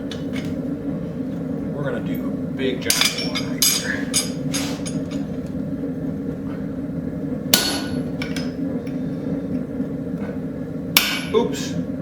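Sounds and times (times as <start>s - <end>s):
steady hum: 0.0s - 12.0s
hammer ringing on steel: 11.0s - 11.4s.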